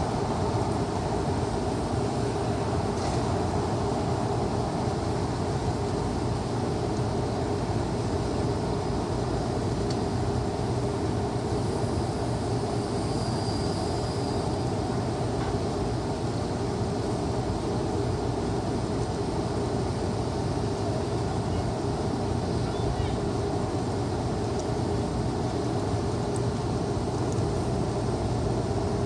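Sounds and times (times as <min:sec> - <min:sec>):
constant low hum: 0:00.0 - 0:29.0
faint high whine: 0:03.8 - 0:23.9.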